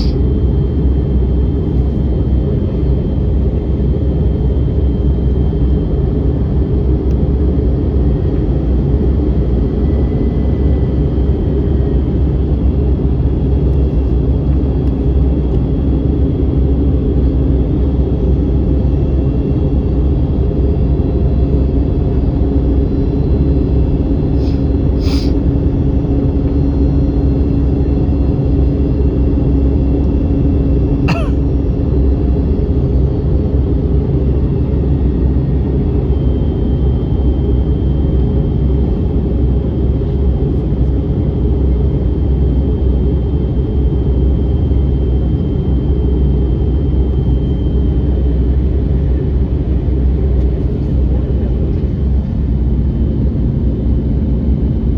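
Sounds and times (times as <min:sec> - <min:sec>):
faint hum: 0:00.0 - 0:04.1, 0:30.9 - 0:32.5
airplane cabin engine roar: 0:00.0 - 0:54.9.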